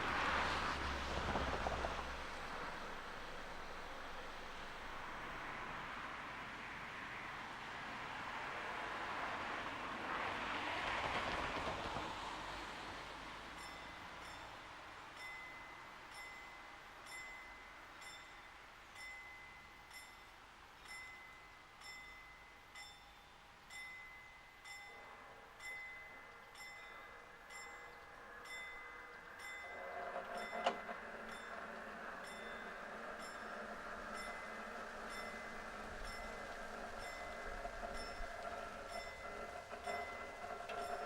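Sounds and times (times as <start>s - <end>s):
level crossing warning bell: 13.5s - 41.0s
rising mechanical noise: 26.3s - 41.0s.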